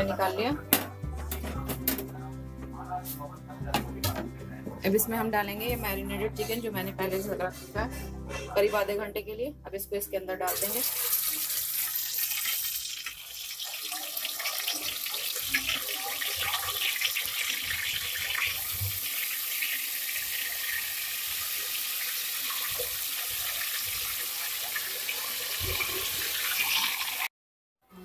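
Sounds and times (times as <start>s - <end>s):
chicken sizzling in hot oil: 10.5s - 27.3s.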